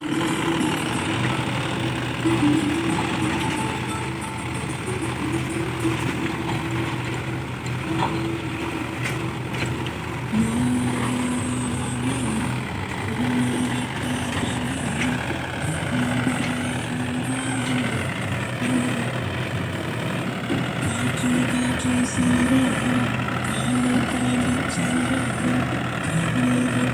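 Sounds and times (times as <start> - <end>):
tractor engine droning: 0.0 - 26.9.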